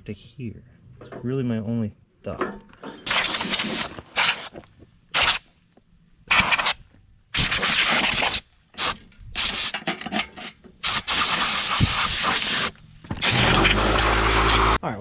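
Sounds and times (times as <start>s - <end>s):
compressed air blow gun hissing: 3.1s - 5.5s, 6.3s - 9.8s, 10.8s - 14.8s.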